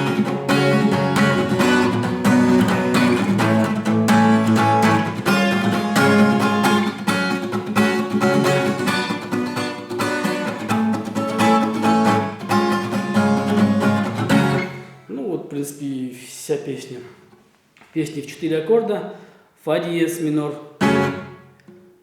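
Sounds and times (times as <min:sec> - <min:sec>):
acoustic guitar strumming: 0:00.0 - 0:15.1, 0:20.8 - 0:21.8.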